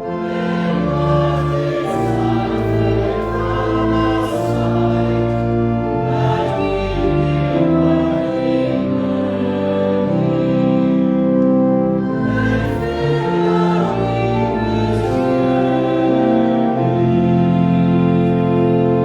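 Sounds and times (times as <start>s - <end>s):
organ chords: 0.0s - 19.0s
voices singing a hymn: 0.0s - 19.0s.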